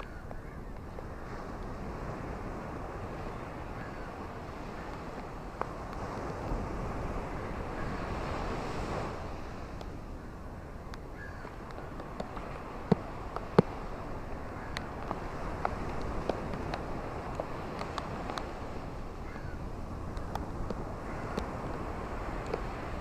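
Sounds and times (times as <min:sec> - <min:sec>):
ocean surf washing ashore: 0:00.0 - 0:23.0.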